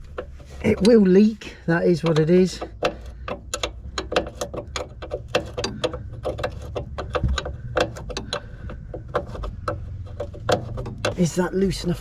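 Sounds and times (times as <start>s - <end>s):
spanner clicking on metal fitting: 1.8s - 11.3s.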